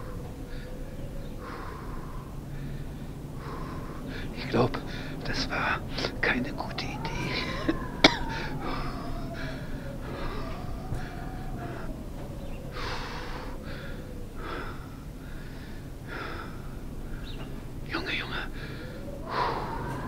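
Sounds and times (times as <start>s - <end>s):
rumbling wind noise: 0.0s - 20.0s
person breathing heavily and gasping: 6.9s - 12.0s, 12.6s - 17.4s, 18.5s - 20.0s.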